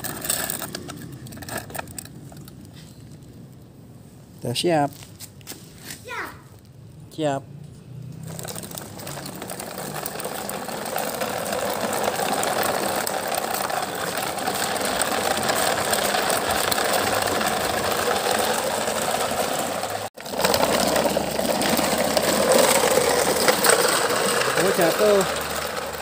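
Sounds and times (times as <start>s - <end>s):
toy motor whirring: 8.3s - 26.0s.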